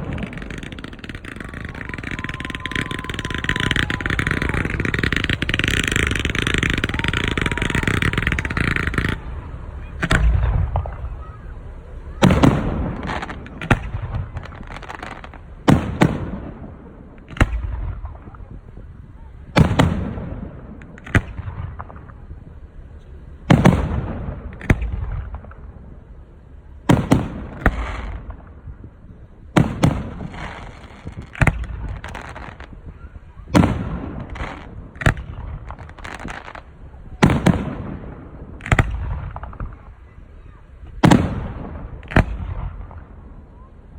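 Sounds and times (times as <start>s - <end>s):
firework shells booming: 0.0s - 43.9s.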